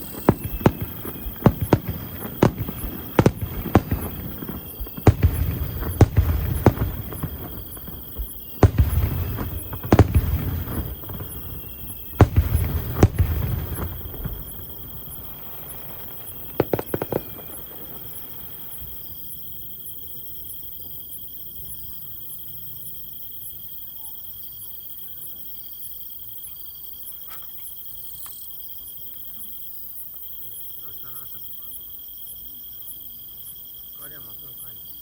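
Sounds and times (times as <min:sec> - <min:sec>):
firework bangs: 0:00.0 - 0:19.2
insects chirping trill: 0:00.0 - 0:35.0.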